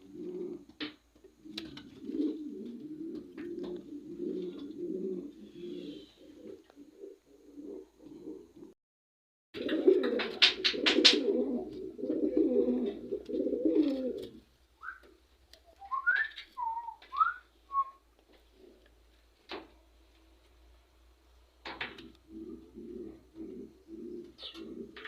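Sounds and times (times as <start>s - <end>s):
dove-like cooing: 0.0s - 8.8s, 9.6s - 14.4s, 21.7s - 25.0s
bird whistled calls: 15.8s - 18.0s.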